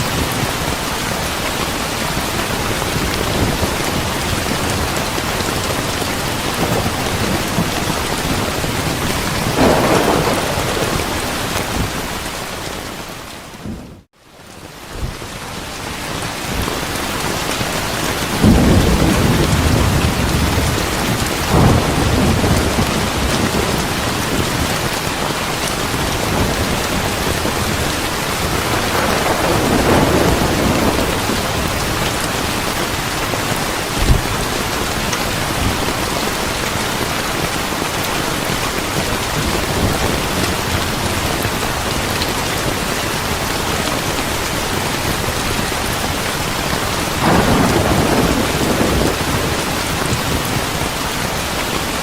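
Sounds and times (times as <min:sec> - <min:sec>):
thunder rumbling: 0:00.0 - 0:14.1, 0:16.5 - 0:52.0
heavy rain: 0:00.0 - 0:52.0
sharp thunder crack: 0:09.4 - 0:12.1, 0:18.4 - 0:24.9, 0:28.5 - 0:32.2, 0:47.2 - 0:49.7.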